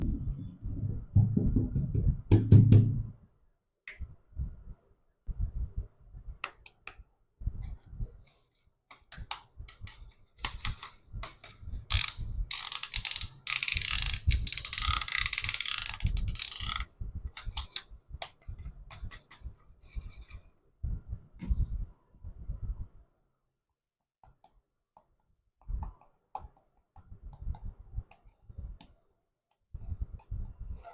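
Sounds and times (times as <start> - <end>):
plastic toys clicking and knocking: 8.9 - 19.6
rapid ratchet-like clicking: 9.8 - 17.9.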